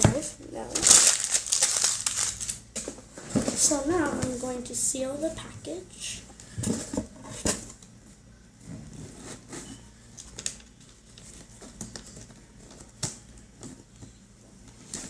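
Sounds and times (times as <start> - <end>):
package being handled: 0.8 - 3.6.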